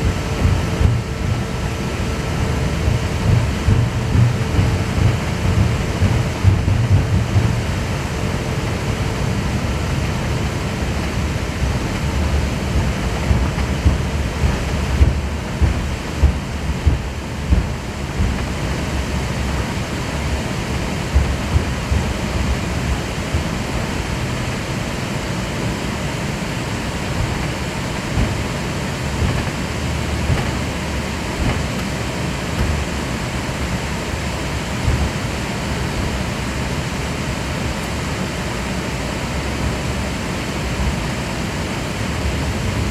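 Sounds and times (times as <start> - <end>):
low thumps: 0.0 - 8.0, 10.9 - 24.6, 27.1 - 33.2
airliner deep rumble: 0.0 - 42.9.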